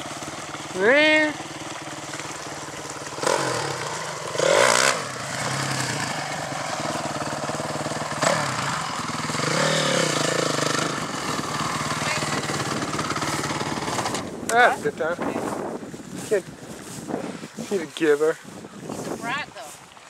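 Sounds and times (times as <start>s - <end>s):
dirt bike engine revving: 0.0s - 17.9s.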